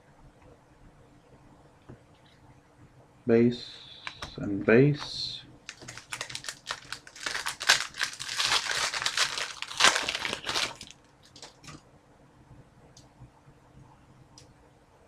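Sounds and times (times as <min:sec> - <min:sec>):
plastic wrapper crinkling: 0:05.6 - 0:11.8.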